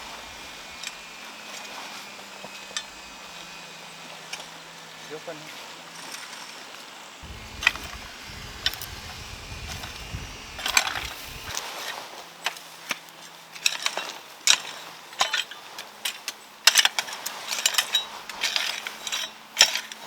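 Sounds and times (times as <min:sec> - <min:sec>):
sharp knocks crunches and scrapes: 0:07.2 - 0:11.5
low rumble: 0:07.2 - 0:11.6.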